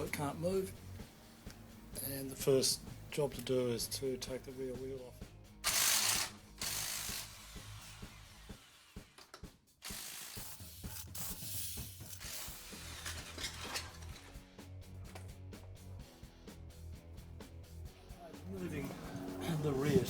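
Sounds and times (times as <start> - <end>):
faint background music: 0.0 - 20.0
impact driver rattling bursts: 5.6 - 7.4.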